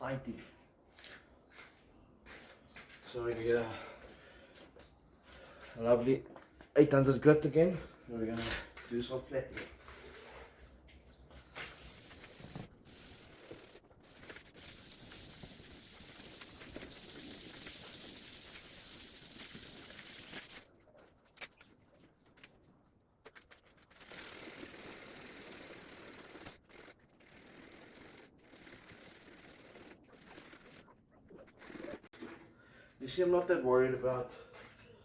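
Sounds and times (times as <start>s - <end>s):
sandpaper rubbing on metal: 11.8s - 20.7s.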